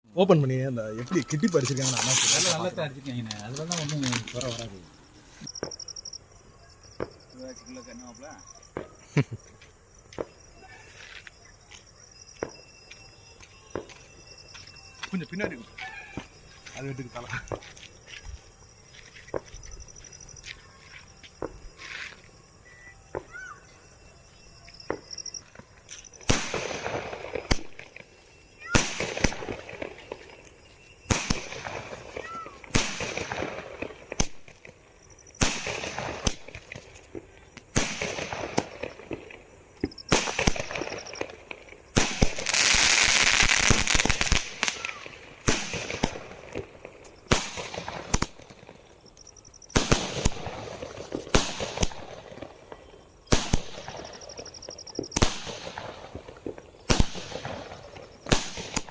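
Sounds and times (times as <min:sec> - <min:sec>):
fireworks bangs and crackling: 0:00.2 - 0:06.0, 0:06.9 - 0:09.4, 0:24.8 - 0:58.9.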